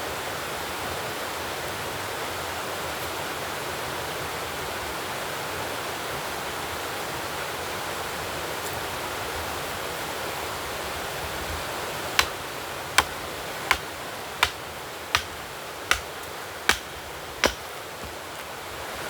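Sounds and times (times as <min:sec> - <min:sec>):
sharp rhythmic knocks: 0:12.2 - 0:12.4, 0:13.0 - 0:18.2.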